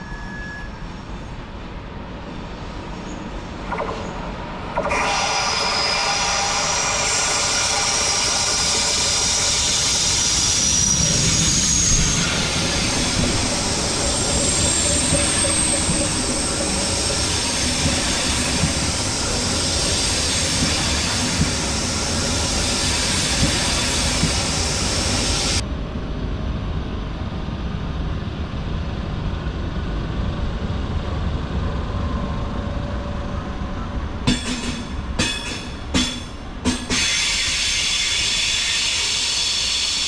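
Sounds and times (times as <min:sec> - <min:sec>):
wheel squeal: 0:00.0 - 0:01.3, 0:04.8 - 0:25.6
train wheels rumbling on rail: 0:00.0 - 0:40.0
high hiss: 0:04.9 - 0:25.6, 0:34.3 - 0:40.0.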